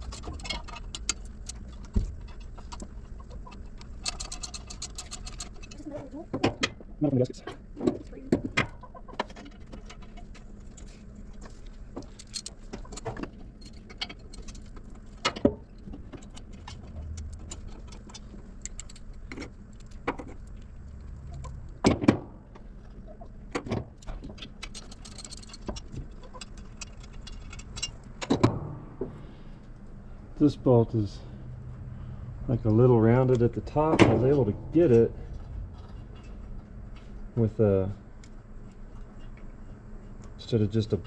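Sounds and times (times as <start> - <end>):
metal clinks and knocks of tools: 24.3 - 29.2
loud metal knocks: 28.2 - 29.5, 33.9 - 36.6.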